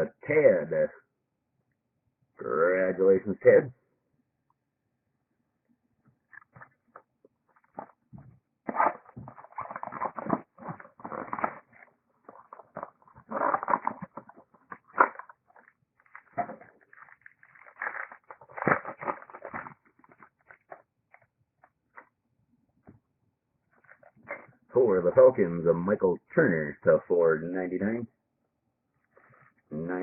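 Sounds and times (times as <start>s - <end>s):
cards and packaging rustling: 6.3s - 22.1s, 23.7s - 24.6s.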